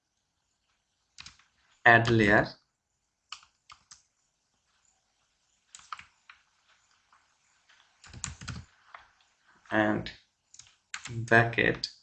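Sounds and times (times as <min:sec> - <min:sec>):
keyboard keystrokes: 0:08.0 - 0:08.6, 0:10.6 - 0:11.2.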